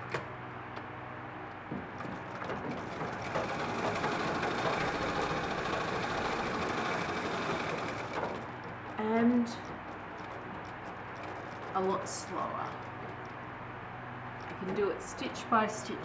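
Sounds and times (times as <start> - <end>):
treadle sewing machine stitching: 1.9 - 13.5.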